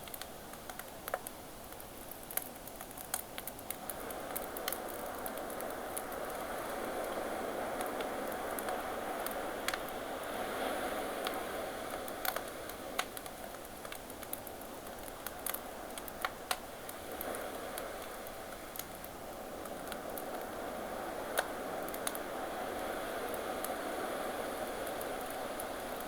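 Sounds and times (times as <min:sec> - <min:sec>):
campfire crackling and popping: 0:00.0 - 0:10.3, 0:11.0 - 0:20.5, 0:21.2 - 0:22.3
ocean waves: 0:03.9 - 0:13.0, 0:19.4 - 0:26.0.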